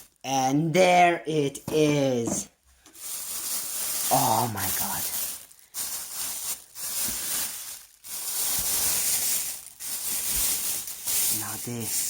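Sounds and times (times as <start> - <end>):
packaging rustling and crinkling: 2.8 - 12.0.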